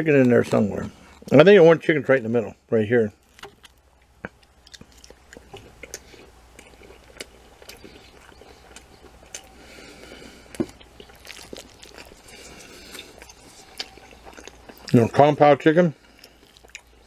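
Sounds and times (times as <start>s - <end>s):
person chewing food: 3.2s - 15.2s, 16.0s - 17.0s.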